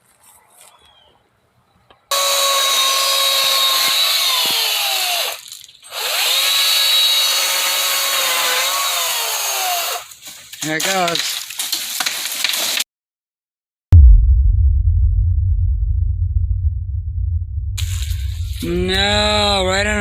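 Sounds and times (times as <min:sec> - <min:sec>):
power saw cutting branch: 0:02.1 - 0:10.2.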